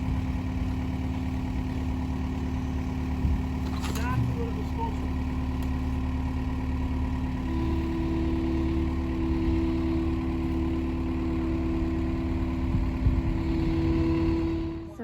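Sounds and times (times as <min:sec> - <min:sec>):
engine idling low rumble: 0:00.0 - 0:15.0
steady hum: 0:07.4 - 0:15.0.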